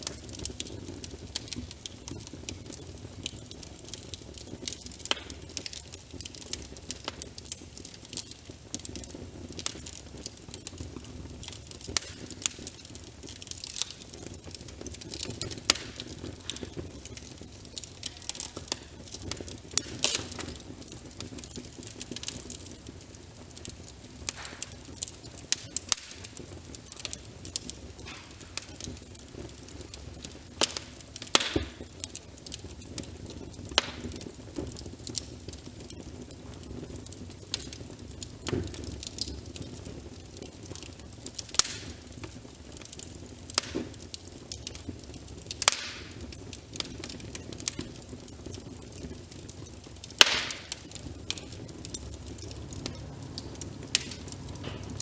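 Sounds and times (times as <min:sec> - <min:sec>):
soft patter of rain: 0:00.0 - 0:55.0
wood fire crackling: 0:00.0 - 0:55.0.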